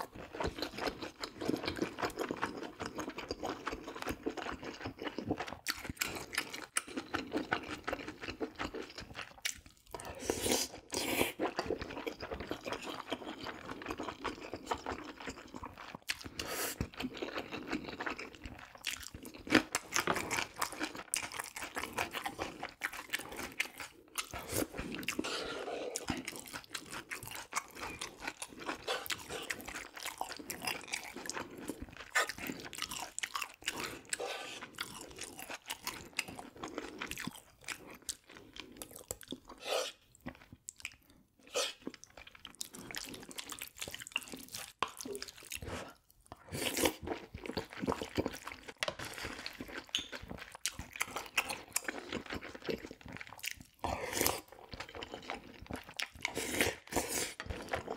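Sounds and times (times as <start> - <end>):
chewing and crunching food: 0.0 - 57.9.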